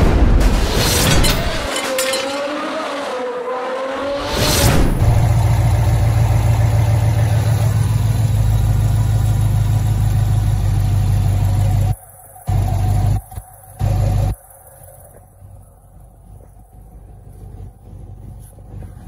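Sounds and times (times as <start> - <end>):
car engine idling: 4.9 - 19.0.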